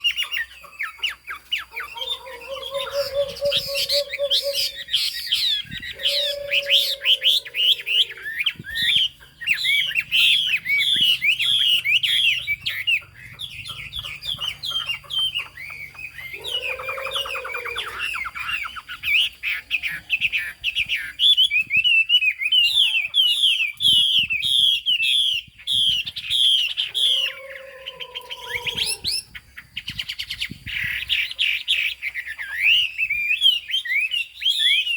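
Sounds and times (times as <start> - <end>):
bird singing warbled notes: 1.6 - 19.2, 26.6 - 29.4
lower longer bird notes: 1.8 - 5.0, 5.6 - 8.4, 26.9 - 29.3.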